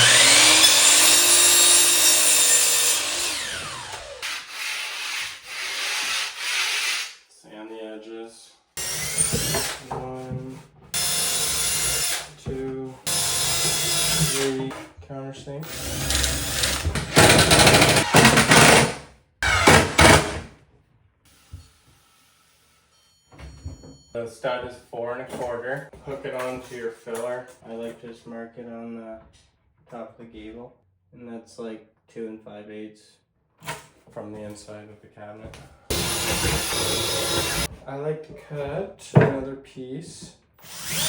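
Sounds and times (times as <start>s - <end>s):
power saw cutting wood: 0.0s - 7.2s, 8.8s - 9.9s, 10.9s - 14.7s, 15.6s - 20.5s, 35.9s - 37.7s, 40.6s - 41.0s
impact driver hammering screws: 13.1s - 14.6s, 15.6s - 20.4s, 35.9s - 37.7s.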